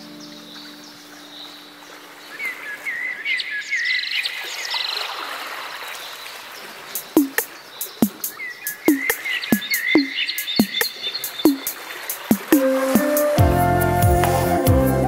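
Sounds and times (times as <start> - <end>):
small birds chirping: 0.0 - 12.6
sharp downward clicking calls: 7.0 - 13.3.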